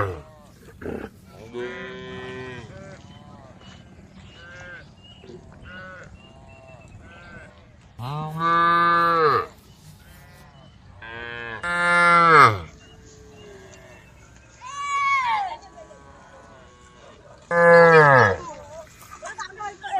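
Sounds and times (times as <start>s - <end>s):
cow mooing: 0.0s - 2.8s, 11.0s - 12.7s.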